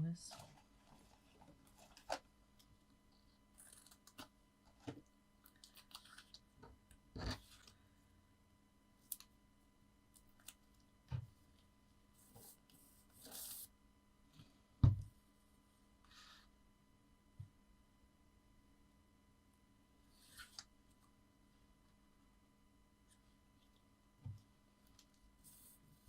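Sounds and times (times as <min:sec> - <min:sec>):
soft knocks on tabletop: 0:14.8 - 0:15.1.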